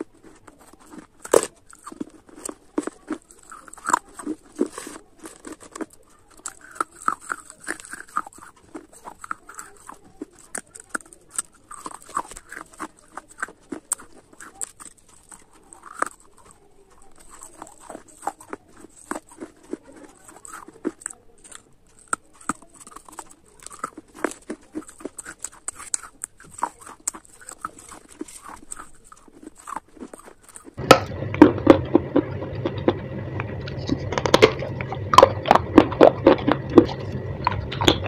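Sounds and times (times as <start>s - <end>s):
crunching and chewing clay: 0.0s - 38.0s
steady low hum: 30.8s - 38.0s.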